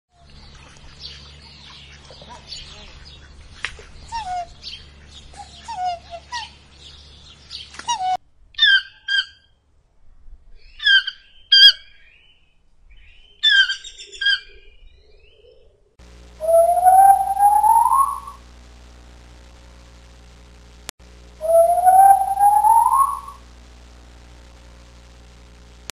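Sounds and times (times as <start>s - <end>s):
cygnets peeping: 0.4s - 8.0s, 13.1s - 15.5s, 16.4s - 18.4s, 21.4s - 23.4s
monkey long rising call: 16.4s - 18.4s, 21.4s - 23.4s
toucan short calls: 21.4s - 23.4s.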